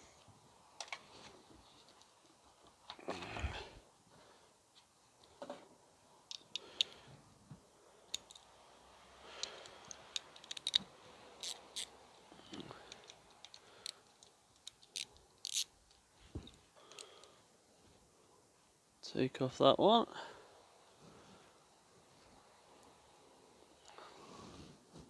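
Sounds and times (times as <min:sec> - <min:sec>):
socket wrench metallic clicks: 0:09.4 - 0:10.8, 0:11.4 - 0:11.9, 0:12.9 - 0:15.7.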